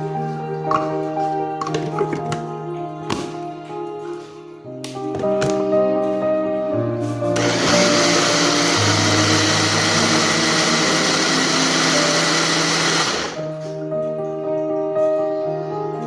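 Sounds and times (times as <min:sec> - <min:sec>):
background music: 0:00.0 - 0:16.0
blender running: 0:07.4 - 0:13.5.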